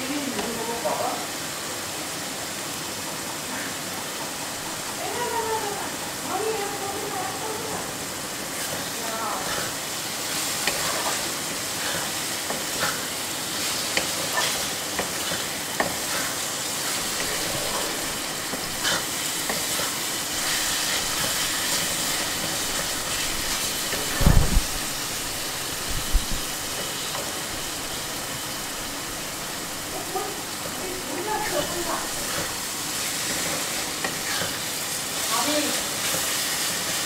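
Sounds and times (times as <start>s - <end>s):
masala sizzling in oil: 0.0s - 37.0s
spatula scraping and clicking on pan: 8.6s - 24.2s, 33.2s - 34.6s.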